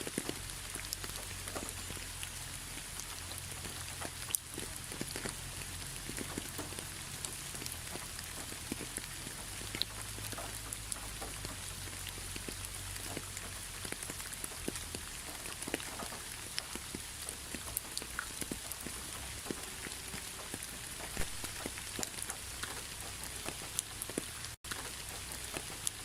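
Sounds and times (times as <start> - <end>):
raindrops pattering: 0.0 - 26.0
steady rain hiss: 0.0 - 26.0.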